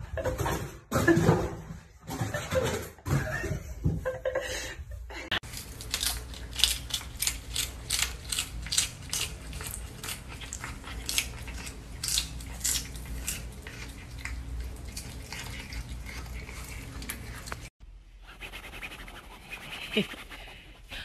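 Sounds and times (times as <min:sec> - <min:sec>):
cat crunching lettuce: 0:05.4 - 0:17.7.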